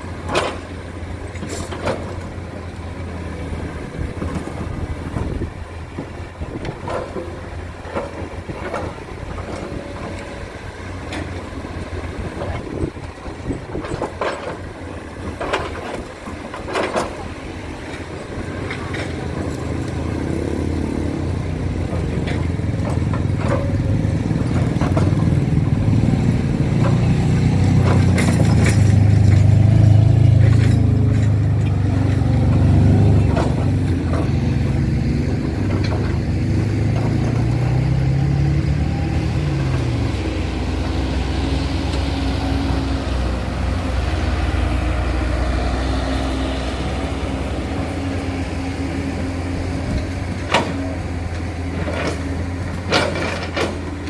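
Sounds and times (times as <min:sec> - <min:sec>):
diesel engine under load: 0:00.0 - 0:54.0
knocks and clatter: 0:21.8 - 0:38.0, 0:48.6 - 0:54.0.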